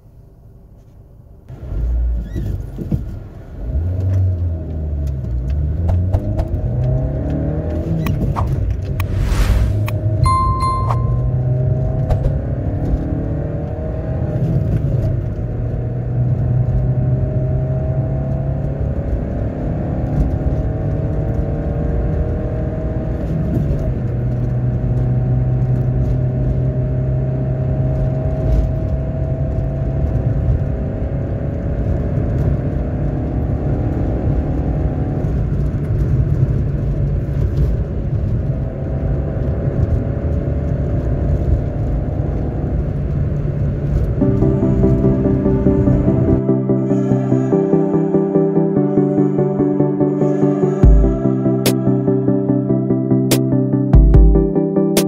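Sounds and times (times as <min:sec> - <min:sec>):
car engine humming: 0:03.0 - 0:23.0, 0:41.3 - 0:54.6.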